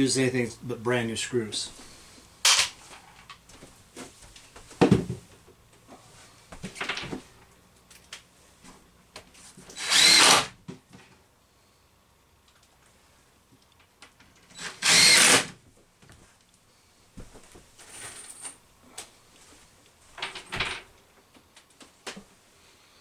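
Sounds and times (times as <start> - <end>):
power drill running: 9.7 - 10.5, 14.5 - 15.6.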